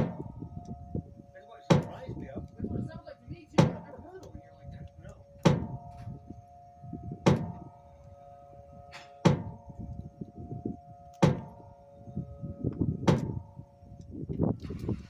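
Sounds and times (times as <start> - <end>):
distant warning siren: 0.0 - 15.0
sharp knocks: 1.7 - 2.0, 3.6 - 3.9, 5.4 - 5.8, 7.2 - 7.6, 9.0 - 9.6, 11.2 - 11.5, 13.0 - 13.4.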